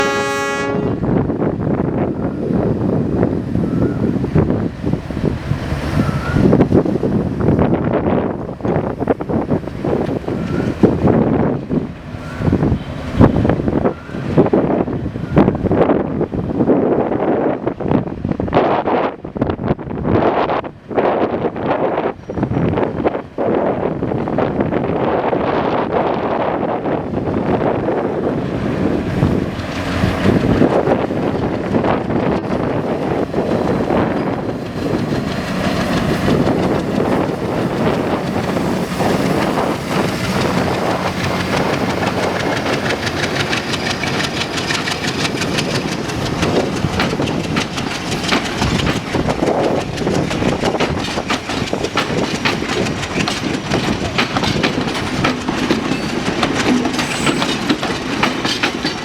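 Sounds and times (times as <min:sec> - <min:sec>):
diesel train passing: 0:00.0 - 0:59.0
wheels clattering over rail joints: 0:27.0 - 0:59.0.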